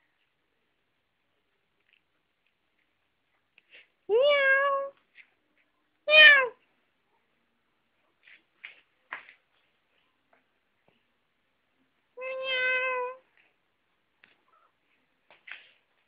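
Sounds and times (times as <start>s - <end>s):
cat meowing: 6.1s - 6.6s, 12.2s - 13.2s.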